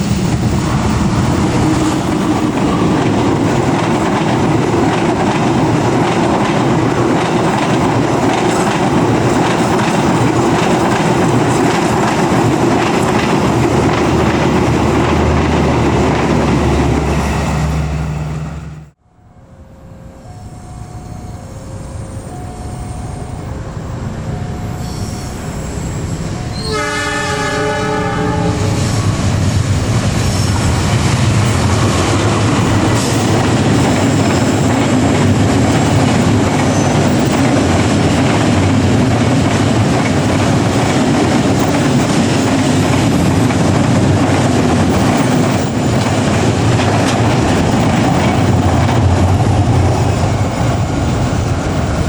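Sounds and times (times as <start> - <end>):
train passing: 0.0 - 52.0
train horn: 26.5 - 29.1.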